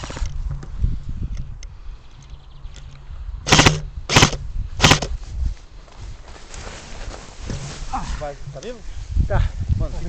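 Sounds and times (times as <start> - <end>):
airsoft gunfire bursts: 3.5 - 5.1.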